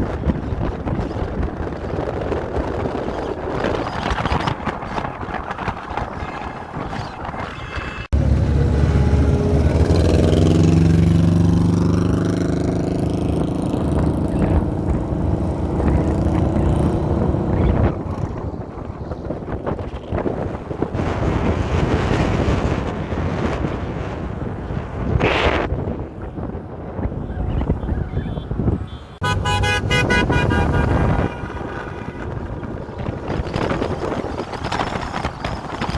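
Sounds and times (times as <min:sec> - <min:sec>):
traffic noise: 0:00.0 - 0:35.9
wind buffeting microphone: 0:00.0 - 0:35.9
nearby engine running loudly: 0:08.2 - 0:17.6.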